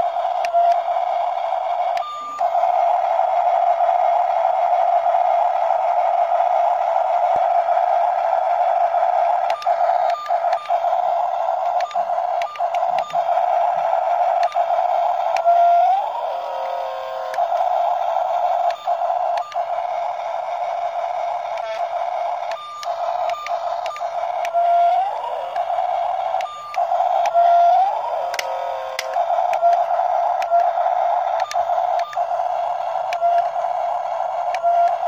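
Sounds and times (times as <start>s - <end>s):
toy gear motors whining: 0.0s - 35.0s
plastic clicks: 9.3s - 13.3s, 14.2s - 14.7s, 17.3s - 19.7s, 28.2s - 33.6s.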